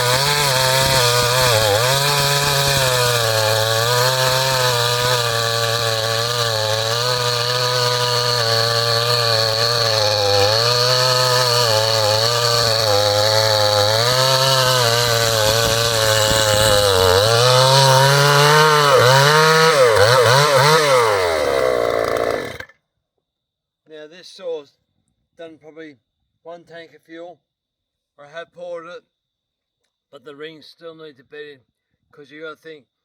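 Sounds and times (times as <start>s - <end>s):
chainsaw cutting wood: 0.0s - 22.7s.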